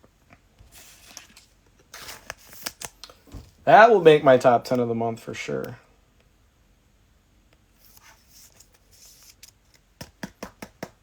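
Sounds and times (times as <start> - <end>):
cards rustling and sliding: 0.6 - 3.6, 7.8 - 10.4.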